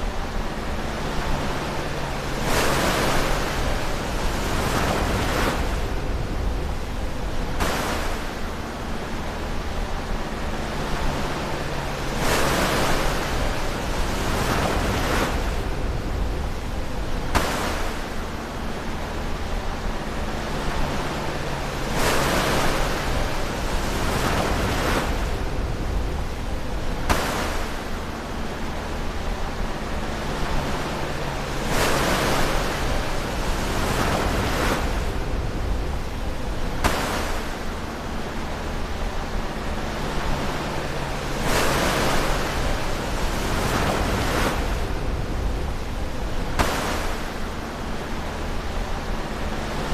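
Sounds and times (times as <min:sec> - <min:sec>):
low rumble of water: 0:00.0 - 0:49.9
ocean waves breaking: 0:00.0 - 0:49.9.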